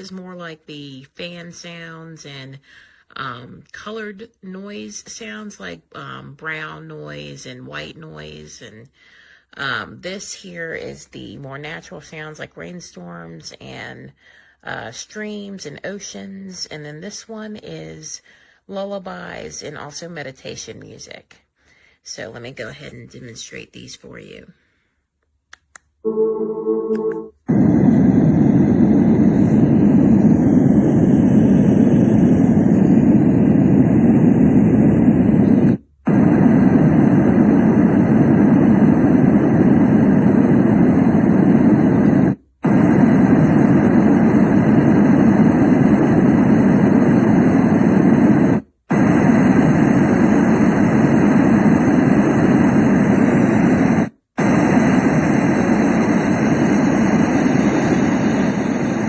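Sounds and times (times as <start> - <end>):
sound machine playing deep noise: 26.0 - 33.4.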